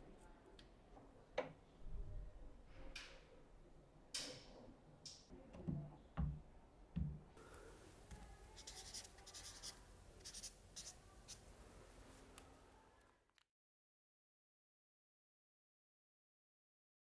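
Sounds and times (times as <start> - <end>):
pencil scratching strokes: 8.5 - 11.6.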